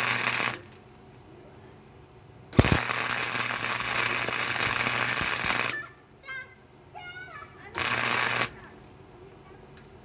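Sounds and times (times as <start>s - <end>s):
welding arc crackling and sizzling: 0.0s - 0.8s, 2.6s - 5.9s, 7.8s - 8.7s
steady hum: 0.0s - 10.0s.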